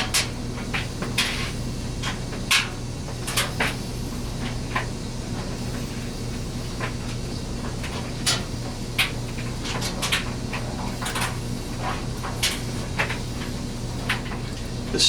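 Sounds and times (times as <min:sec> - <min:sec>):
steady low hum: 0:14.8 - 0:15.0.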